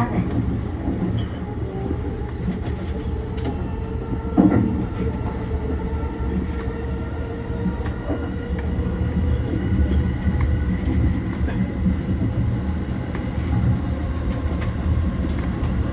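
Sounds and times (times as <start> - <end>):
train clunk: 0.0 - 5.5
steady train tones: 0.0 - 15.9
train rumble: 0.0 - 15.9.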